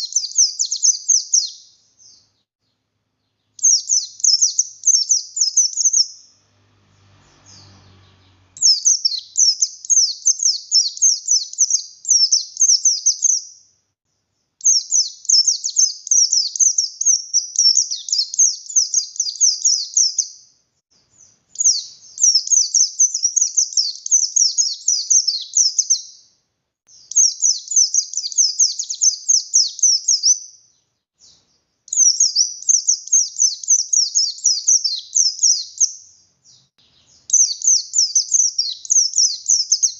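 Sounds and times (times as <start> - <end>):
bird singing rapid high notes: 3.4 - 13.7, 21.2 - 26.3, 26.9 - 30.4, 31.2 - 39.9.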